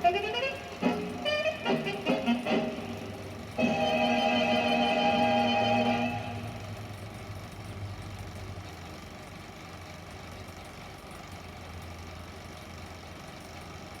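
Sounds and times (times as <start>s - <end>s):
film playback hum and hiss: 0.0s - 7.4s.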